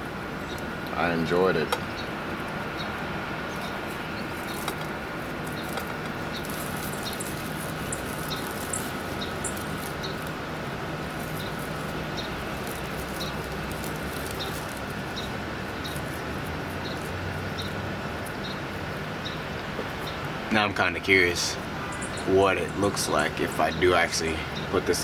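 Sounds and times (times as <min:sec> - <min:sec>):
steady background hum: 0:00.0 - 0:25.0
wheat husks crackling in hands: 0:02.4 - 0:19.0.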